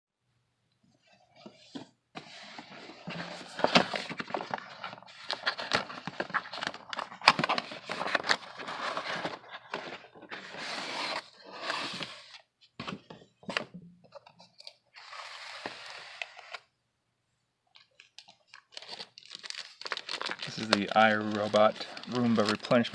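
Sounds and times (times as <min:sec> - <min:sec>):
packaging scraping and crackling: 0:03.0 - 0:12.3, 0:17.8 - 0:22.9
sharp clicks of packaging: 0:17.8 - 0:22.9.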